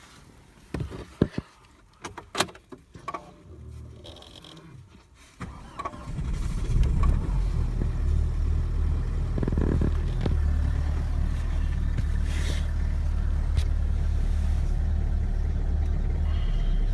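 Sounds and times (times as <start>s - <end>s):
diesel engine idling: 5.5s - 16.9s.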